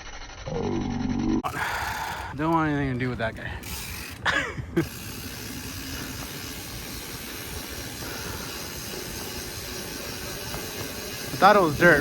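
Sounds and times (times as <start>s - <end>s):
falling pitched sound: 0.0s - 1.5s
wind noise: 1.4s - 12.0s
bike tyres rolling on dirt: 1.5s - 12.0s.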